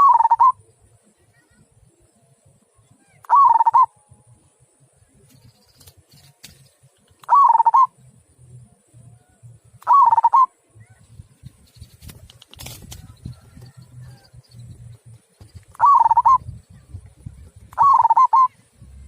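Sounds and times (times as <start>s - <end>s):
dove cooing: 0.0s - 0.6s, 3.3s - 3.9s, 7.3s - 7.9s, 9.9s - 10.5s, 15.7s - 16.6s, 17.8s - 18.6s
faint low rumble: 7.9s - 19.0s.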